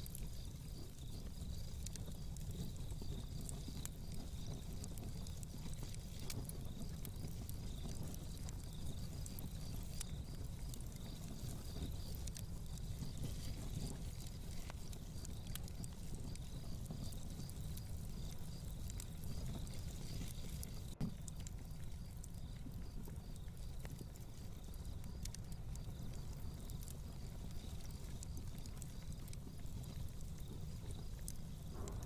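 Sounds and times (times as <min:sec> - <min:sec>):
fireplace crackling: 0:00.0 - 0:32.0.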